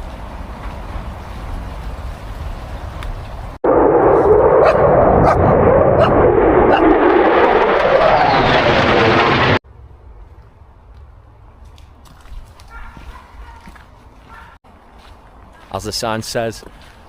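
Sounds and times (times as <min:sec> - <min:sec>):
jet aircraft roar: 0:03.6 - 0:09.6
dog barking: 0:04.6 - 0:06.8, 0:12.7 - 0:14.6.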